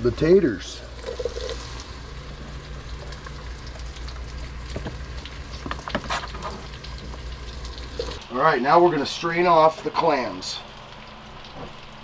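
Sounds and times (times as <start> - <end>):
onions sizzling in grease: 0.8 - 9.1.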